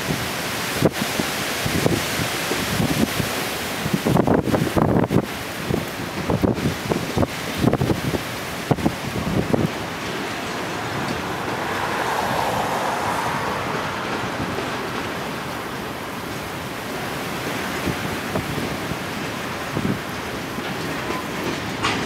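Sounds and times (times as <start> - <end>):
freight train rolling past: 0.0 - 22.0
train wheel clacks: 0.0 - 22.0
wind buffeting microphone: 0.0 - 22.0.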